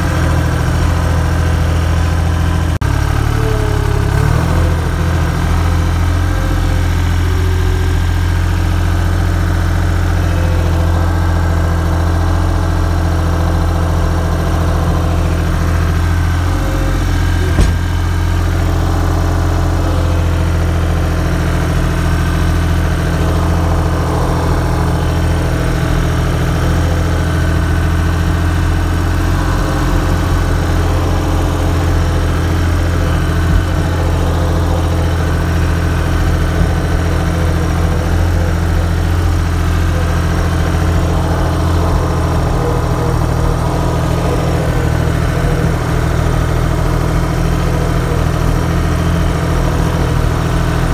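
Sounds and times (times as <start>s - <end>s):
engine running steadily: 0.0s - 50.9s
sharp knock: 17.5s - 17.9s.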